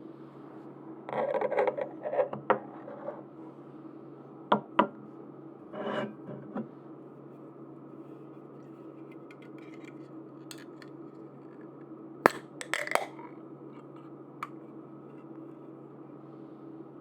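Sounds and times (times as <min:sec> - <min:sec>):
steady low hum: 0:06.7 - 0:17.0.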